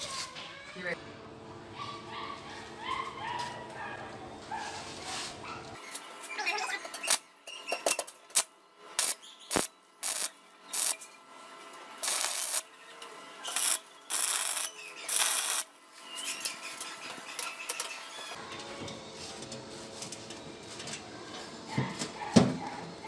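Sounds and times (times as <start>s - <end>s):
welding arc crackling and hissing: 8.3s - 18.3s.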